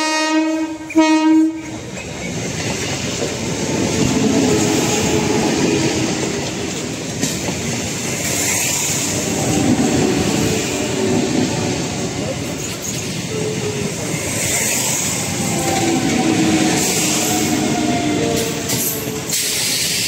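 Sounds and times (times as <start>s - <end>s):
train horn blast: 0.0s - 1.8s, 15.4s - 19.0s
train coaches rushing past: 0.0s - 20.0s.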